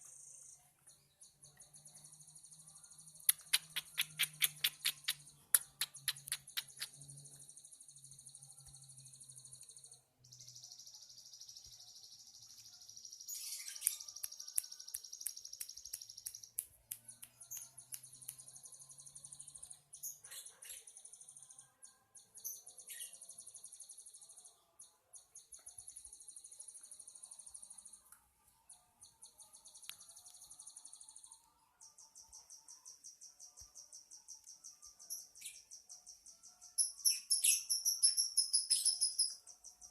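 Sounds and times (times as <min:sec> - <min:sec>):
lovebird trilling: 0:03.3 - 0:06.9
short sharp chirps: 0:03.3 - 0:07.0.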